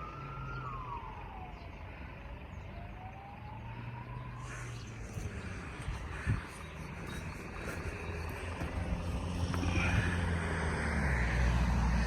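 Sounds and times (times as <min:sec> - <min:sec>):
fire engine diesel engine: 0:00.0 - 0:12.0.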